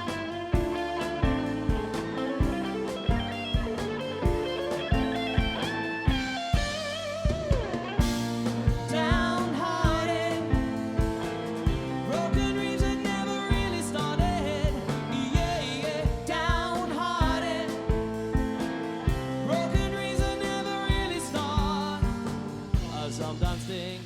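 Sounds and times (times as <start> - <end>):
lead guitar melody with bends: 0.0 - 16.6
drum kit beating: 0.0 - 24.0
electric guitars and keys chords: 0.0 - 24.0.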